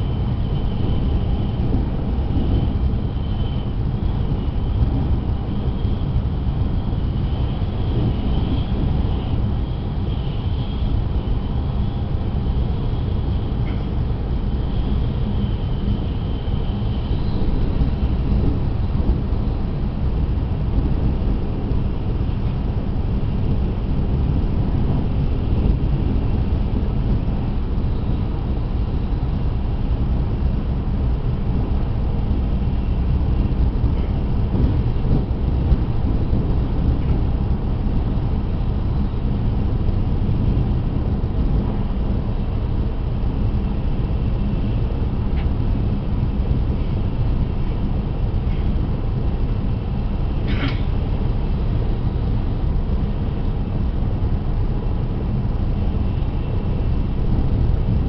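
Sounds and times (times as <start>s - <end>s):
train running rumble: 0.0s - 58.0s.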